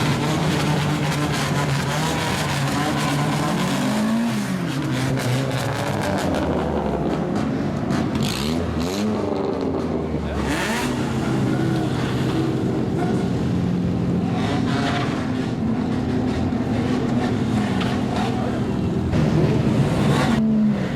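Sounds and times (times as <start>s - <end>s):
loud car exhaust revving: 0.0s - 20.9s
engines idling: 6.6s - 20.6s.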